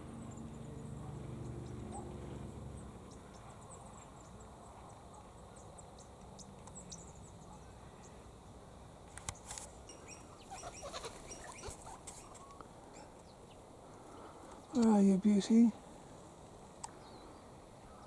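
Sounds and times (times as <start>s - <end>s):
faint high-pitched chirps and ticks: 3.1s - 8.4s.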